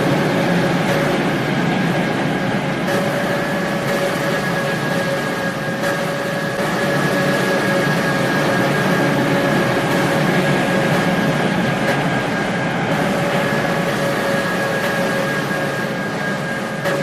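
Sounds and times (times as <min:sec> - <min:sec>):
steady whining tones: 0:00.0 - 0:17.0
train rolling noise: 0:00.0 - 0:17.0.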